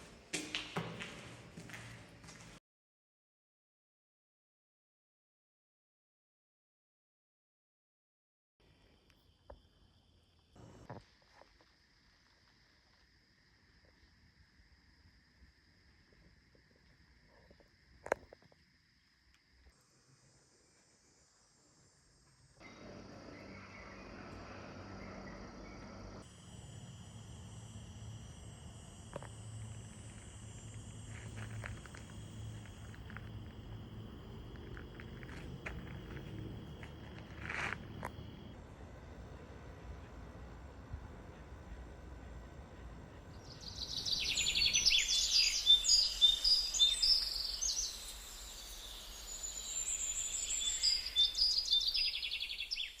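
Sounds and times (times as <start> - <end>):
insects trilling: 8.7 - 38.6, 41.2 - 53.0
songbird singing: 22.6 - 26.2, 42.9 - 53.0.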